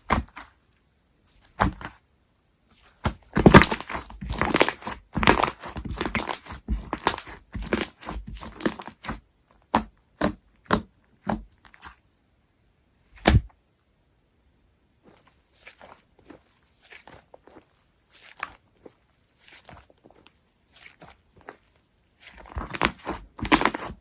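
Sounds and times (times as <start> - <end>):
slime squished by hand: 1.4 - 1.9, 2.8 - 12.0, 13.2 - 13.5, 15.1 - 24.0.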